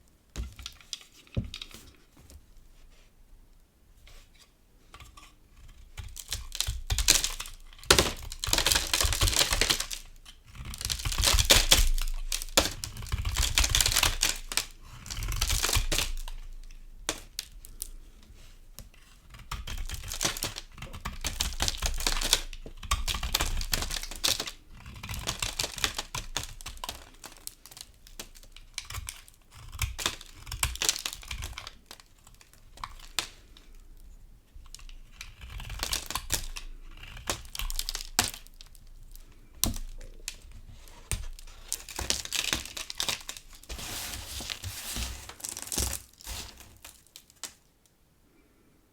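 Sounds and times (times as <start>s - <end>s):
soap crunching as carved: 5.0s - 18.0s, 18.8s - 47.6s.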